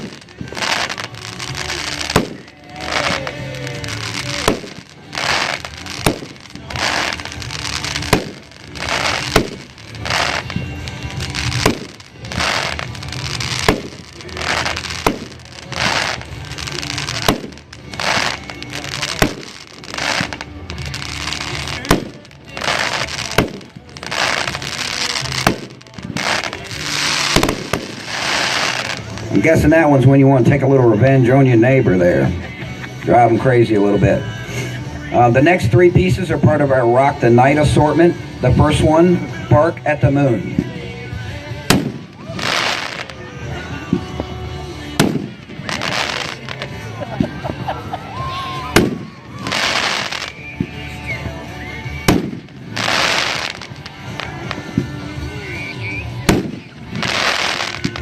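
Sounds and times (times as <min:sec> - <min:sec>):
firework hiss and bang: 0:00.0 - 0:29.5, 0:41.5 - 0:43.2, 0:43.8 - 0:47.4, 0:48.7 - 0:51.4, 0:52.0 - 0:55.3, 0:56.2 - 0:58.0
background music: 0:00.0 - 0:58.0
falling firework whistles: 0:48.5 - 0:53.8.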